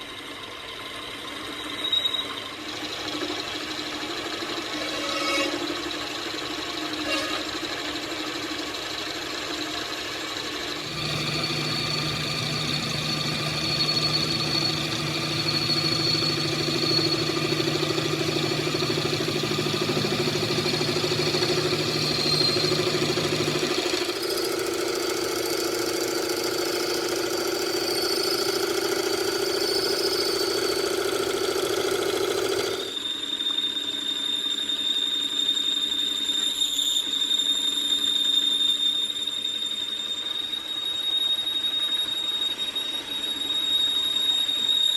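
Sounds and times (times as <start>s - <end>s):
machine humming and whining: 0.0s - 33.5s.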